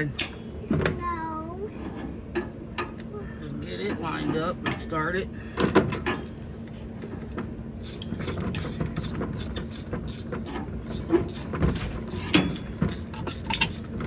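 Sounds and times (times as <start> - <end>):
ratchet wrench clicking: 7.8 - 13.9.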